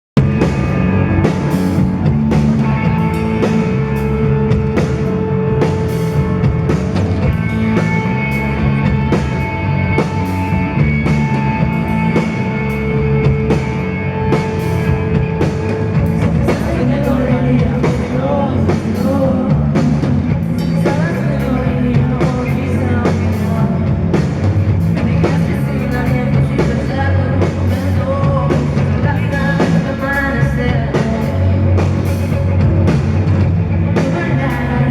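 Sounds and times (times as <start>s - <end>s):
electric guitar: 0.2s - 34.9s
person singing: 16.1s - 24.2s, 25.0s - 31.7s, 33.9s - 34.9s.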